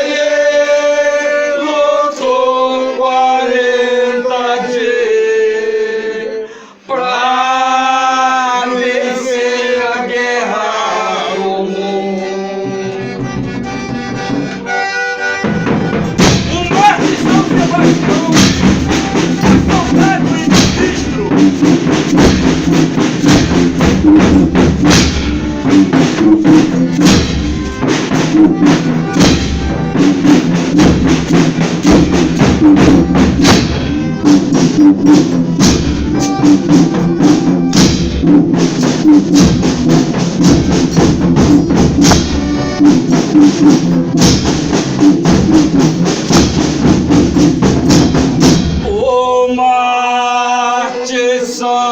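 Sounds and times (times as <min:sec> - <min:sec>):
drums: 0:13.4 - 0:49.6.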